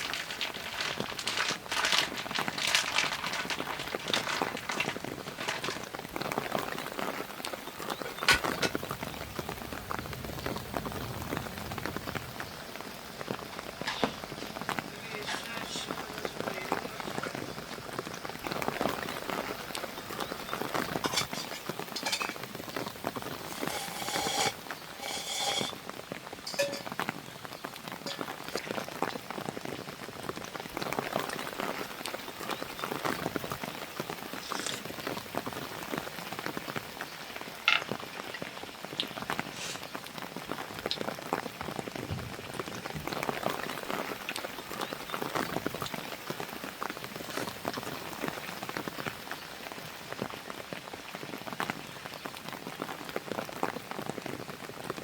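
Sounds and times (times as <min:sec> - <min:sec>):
clinks and knocks: 0:00.0 - 0:06.0, 0:08.0 - 0:08.8, 0:20.9 - 0:22.6, 0:23.3 - 0:25.8, 0:26.5 - 0:27.0, 0:28.0 - 0:28.7, 0:37.7 - 0:37.9
rain pattering: 0:00.0 - 0:55.0.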